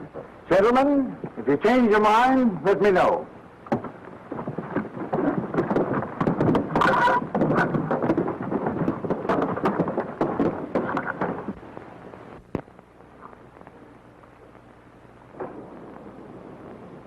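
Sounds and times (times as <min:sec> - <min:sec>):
rumbling clatter of knocks: 0:03.6 - 0:11.6.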